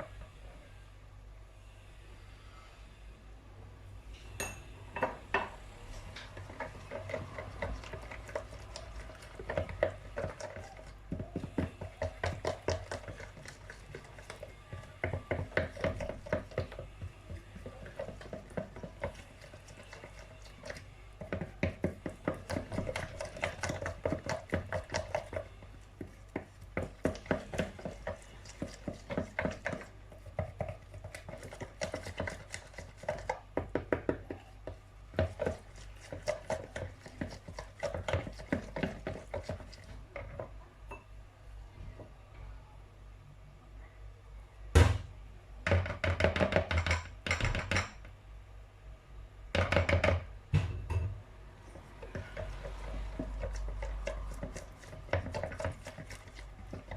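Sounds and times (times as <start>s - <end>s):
utensil beating batter in bowl: 5.8s - 41.0s, 45.6s - 48.0s, 49.5s - 50.3s, 51.6s - 56.9s.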